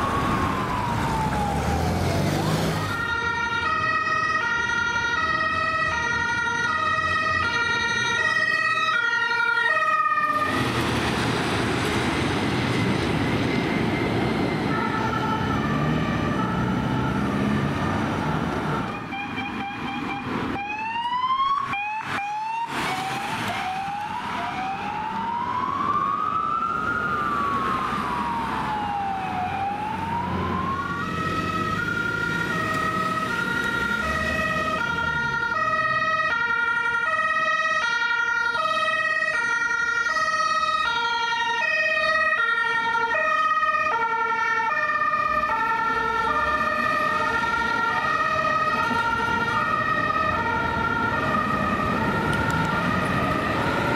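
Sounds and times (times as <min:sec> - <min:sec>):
siren yelps: 0:00.0 - 0:10.7, 0:12.7 - 0:53.9
siren wail: 0:00.0 - 0:53.9
two-tone hi-lo siren horn: 0:02.8 - 0:10.6, 0:14.6 - 0:20.9.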